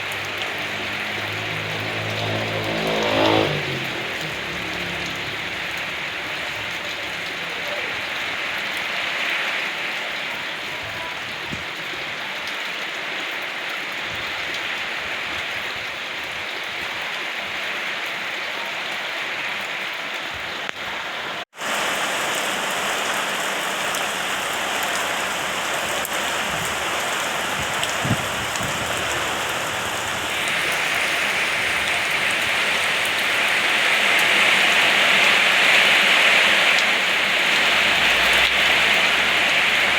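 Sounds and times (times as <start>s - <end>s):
rain hissing: 0.0s - 11.8s, 21.5s - 39.9s.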